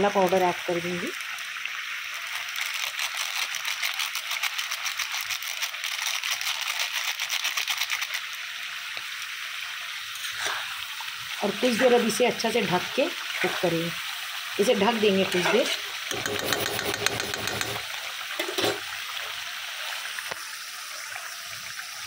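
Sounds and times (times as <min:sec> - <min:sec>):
meat frying in hot oil: 0:00.0 - 0:22.0.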